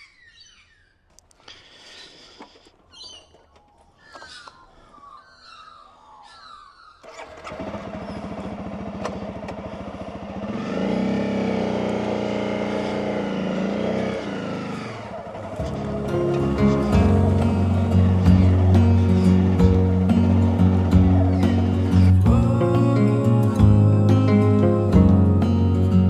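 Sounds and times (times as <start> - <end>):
birds chirping: 0.0 - 8.8, 12.4 - 26.0
motorcycle engine revving: 7.0 - 26.0.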